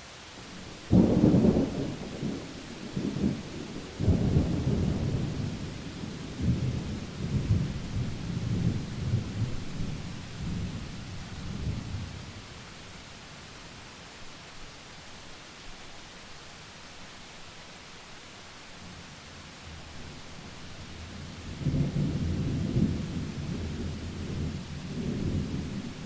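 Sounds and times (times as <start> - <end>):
rain hiss: 0.0 - 26.0
thunder rumbling: 0.6 - 12.4, 21.3 - 26.0.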